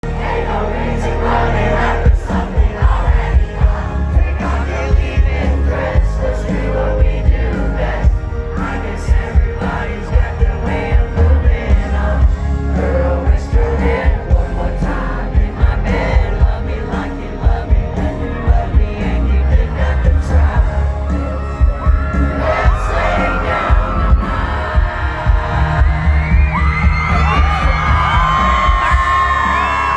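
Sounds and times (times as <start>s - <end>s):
live country band playing: 0.3s - 29.9s
crowd cheering: 19.1s - 29.9s.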